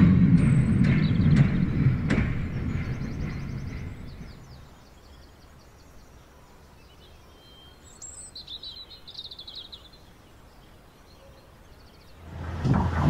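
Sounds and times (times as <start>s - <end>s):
model train rumbling: 0.0s - 5.6s, 12.2s - 13.0s
bird chirps and trills: 0.0s - 12.5s.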